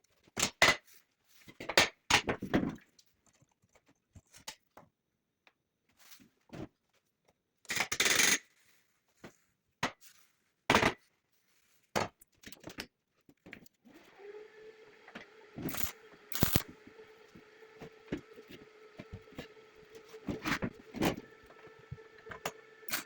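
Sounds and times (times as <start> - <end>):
small electric motor humming: 13.9 - 23.0.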